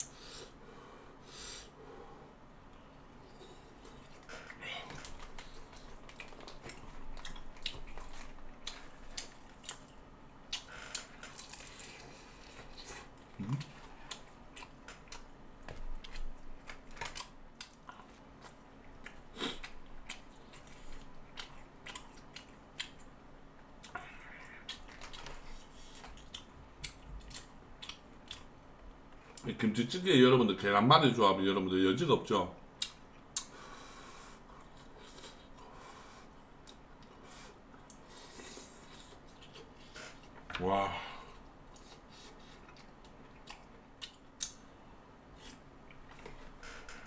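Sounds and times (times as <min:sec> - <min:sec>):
person chewing: 0:03.3 - 0:23.2, 0:23.8 - 0:28.5, 0:34.2 - 0:40.4, 0:41.4 - 0:44.7.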